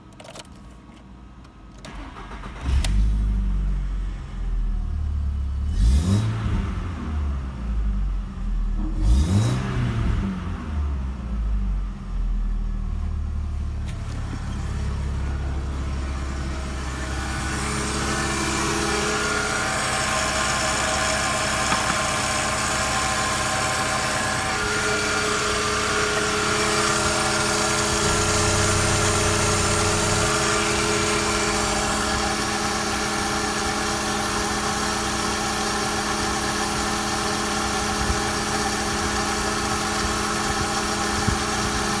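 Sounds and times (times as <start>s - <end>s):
car engine idling: 11.0s - 42.0s.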